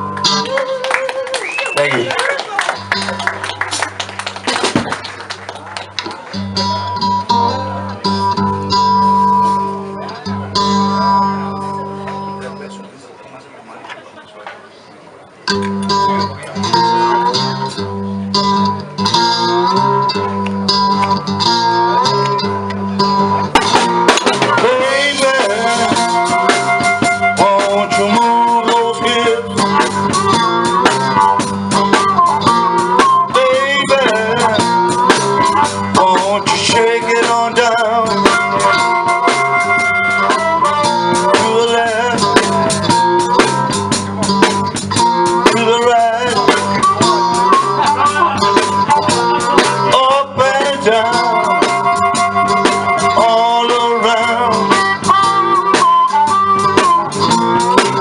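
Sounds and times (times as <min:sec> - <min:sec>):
electric guitar bending notes: 0:00.0 - 0:13.0, 0:15.4 - 0:58.0
steady drum beat: 0:02.8 - 0:06.0, 0:23.1 - 0:58.0.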